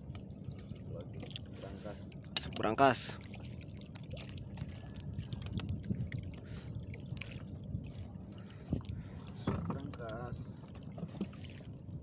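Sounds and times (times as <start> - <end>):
water lapping around boat: 0.0 - 12.0
light taps and clicks: 9.3 - 10.2.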